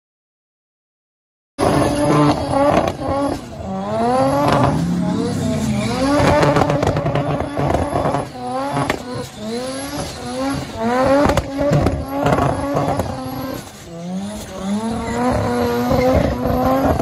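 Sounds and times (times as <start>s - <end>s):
rotary engine revving hard: 1.6s - 17.0s.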